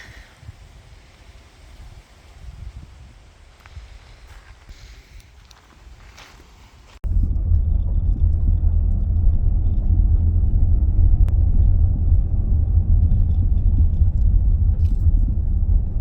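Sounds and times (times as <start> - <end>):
vehicle engine and road noise: 3.4 - 16.0.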